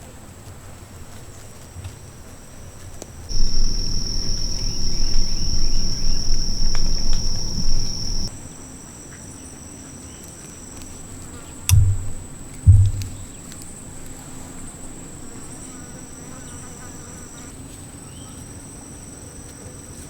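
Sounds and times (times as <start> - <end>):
dull thumps: 3.3 - 8.3, 11.7 - 13.4
insects trilling: 3.3 - 8.3
low rumble: 3.3 - 8.3, 11.7 - 13.3.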